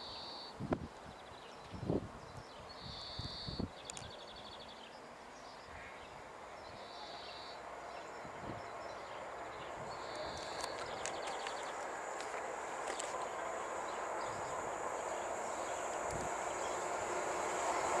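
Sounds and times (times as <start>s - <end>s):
high locomotive whine: 4.9s - 18.0s
freight train rumble: 5.6s - 18.0s.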